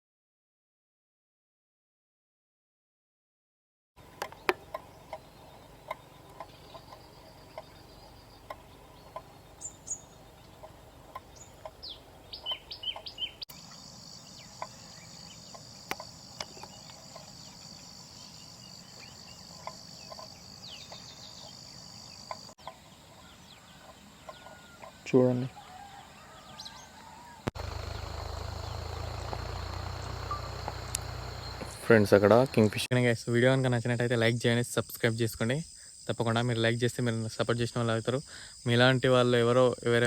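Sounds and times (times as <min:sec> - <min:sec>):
birds chirping: 0:04.0 - 0:32.9
high-pitched insect trill: 0:13.5 - 0:22.6, 0:27.6 - 0:39.8.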